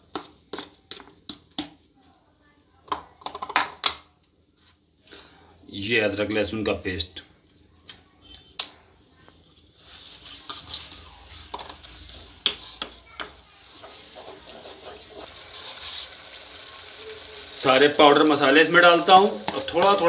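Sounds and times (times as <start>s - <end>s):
paste sizzling in oil: 9.7s - 20.0s
spatula knocking and scraping pan: 9.9s - 16.0s, 19.4s - 20.0s.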